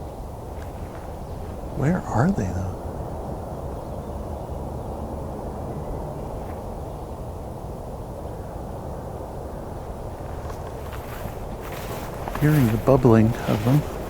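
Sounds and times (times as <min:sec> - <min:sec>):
faint bird call: 0:00.0 - 0:07.3
distant highway traffic rumble: 0:00.0 - 0:14.0.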